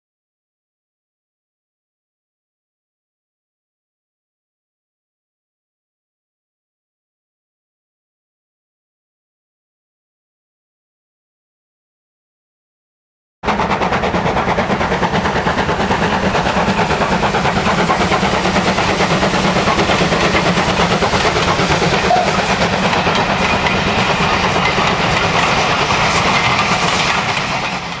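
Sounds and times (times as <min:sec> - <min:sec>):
steam locomotive chuffing: 0:13.4 - 0:28.0
steam hiss: 0:13.5 - 0:28.0.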